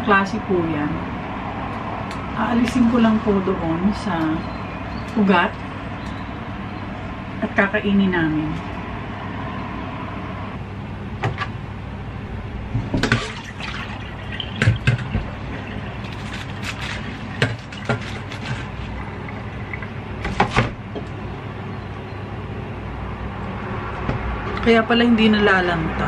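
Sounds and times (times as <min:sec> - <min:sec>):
knife cutting lettuce: 0:16.1 - 0:18.7.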